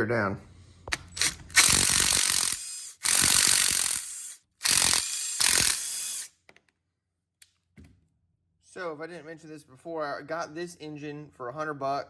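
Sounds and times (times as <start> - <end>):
ratchet wrench ratcheting: 0.9 - 6.3.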